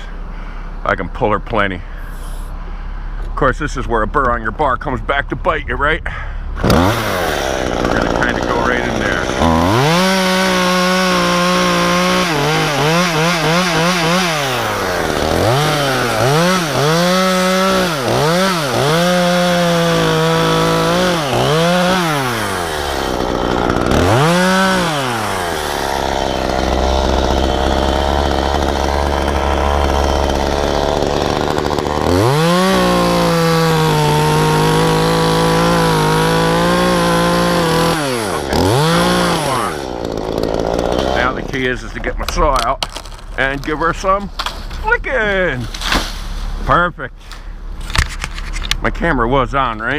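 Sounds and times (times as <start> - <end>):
chainsaw cutting wood: 6.6 - 44.8, 45.6 - 46.6.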